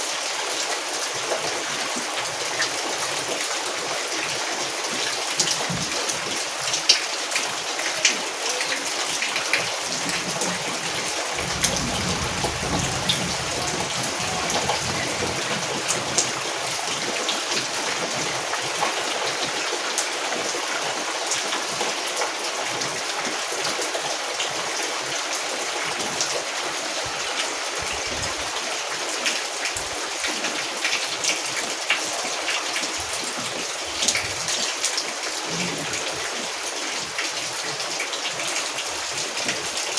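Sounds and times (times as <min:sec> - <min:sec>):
rain falling: 0:00.0 - 0:39.9
raindrops ticking: 0:05.4 - 0:18.2.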